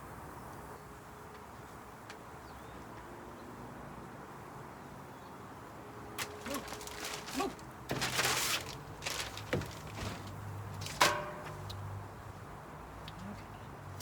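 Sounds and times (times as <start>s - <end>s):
rasping scrape: 6.2s - 11.0s
ringing metal clank: 10.8s - 11.7s.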